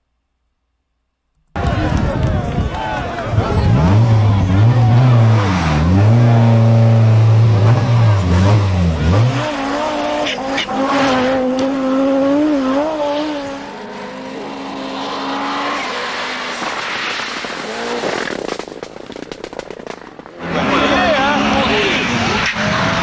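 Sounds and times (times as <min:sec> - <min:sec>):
rally car engine revving: 0:01.5 - 0:23.0
sharp crackling: 0:14.6 - 0:23.0.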